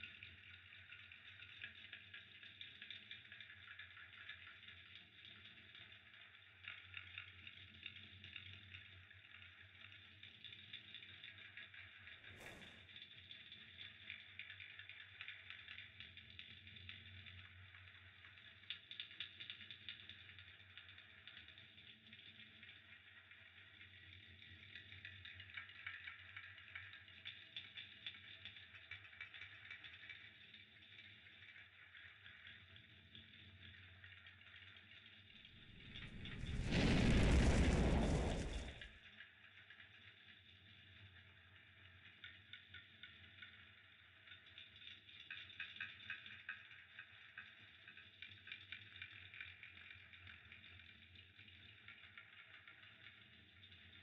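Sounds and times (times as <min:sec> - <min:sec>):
fire crackling faintly: 0:00.0 - 0:54.0
low hum: 0:35.5 - 0:38.8.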